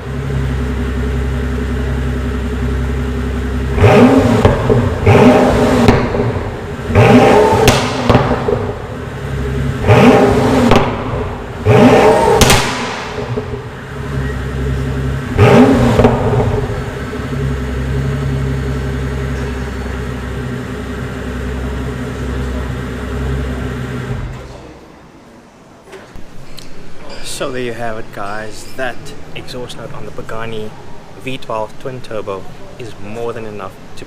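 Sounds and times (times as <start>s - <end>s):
car engine revving and idling: 0.0s - 24.5s
exhaust crack: 0.0s - 24.6s.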